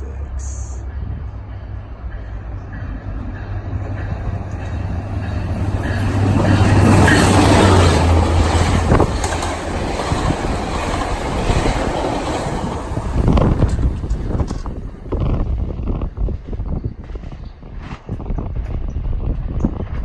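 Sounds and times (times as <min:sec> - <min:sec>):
diesel locomotive engine drone: 0:00.0 - 0:20.0
rail and wheel noise: 0:00.0 - 0:20.0.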